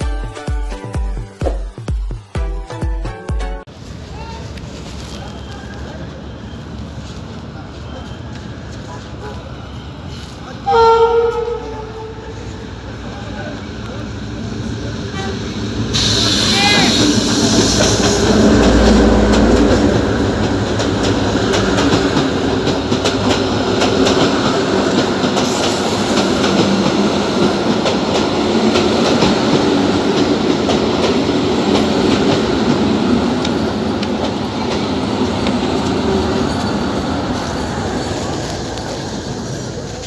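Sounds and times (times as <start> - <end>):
train rumbling on track: 3.7 - 40.0
wheels clicking over rail joints: 17.8 - 40.0.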